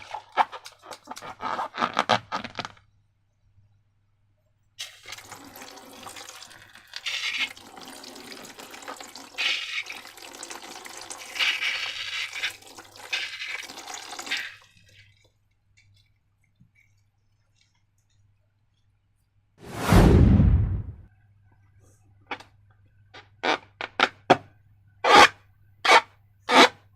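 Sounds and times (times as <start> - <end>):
liquid pouring and splashing: 4.8 - 18.2.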